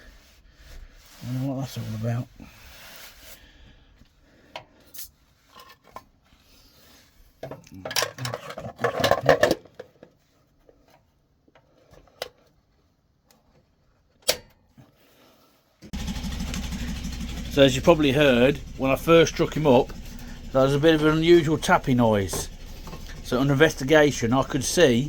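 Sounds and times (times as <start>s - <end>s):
metal tools clinking and clattering: 7.6s - 9.8s.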